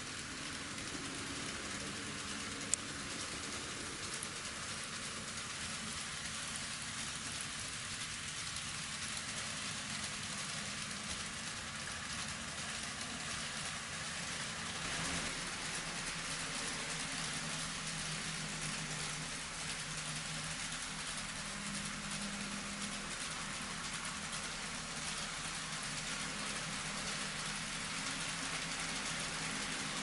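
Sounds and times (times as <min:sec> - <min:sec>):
faint motor hum: 0:00.0 - 0:30.0
model train wheels rolling on rail: 0:00.0 - 0:30.0.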